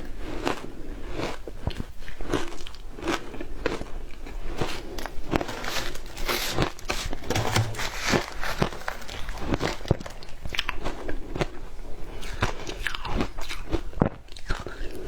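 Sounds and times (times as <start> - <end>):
ice being bitten and chewed: 0.0 - 15.0.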